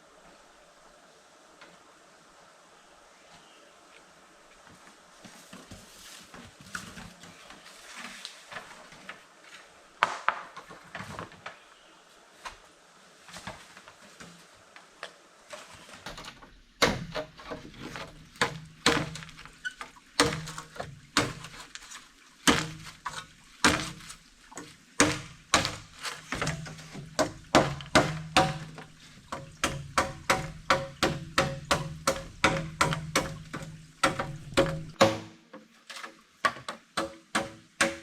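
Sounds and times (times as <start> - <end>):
sharp wooden knocks: 18.4 - 19.3, 20.2 - 21.5, 25.0 - 35.5, 36.4 - 38.0.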